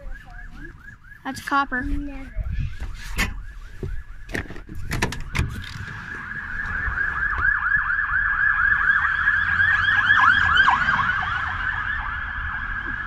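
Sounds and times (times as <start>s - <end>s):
siren yelping: 0.0s - 13.0s.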